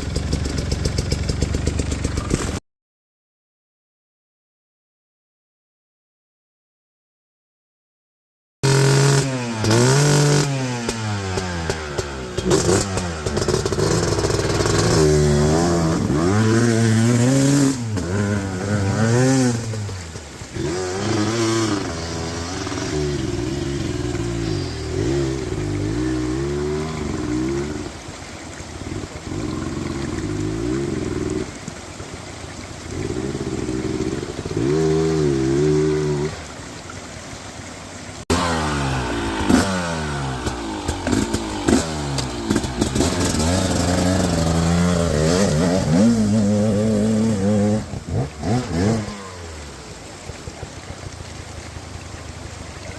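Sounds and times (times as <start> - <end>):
knocks and clatter: 0.0 - 2.6
dirt bike engine revving: 8.6 - 27.9, 32.9 - 36.4, 38.3 - 50.0.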